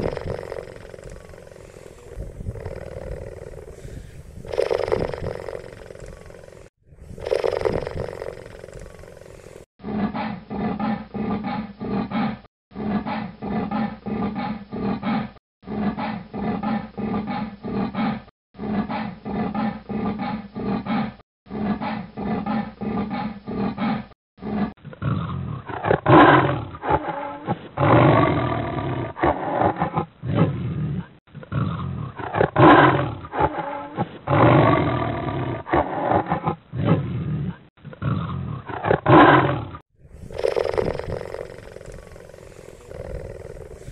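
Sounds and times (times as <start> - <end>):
cheetah calling: 40.2 - 43.9.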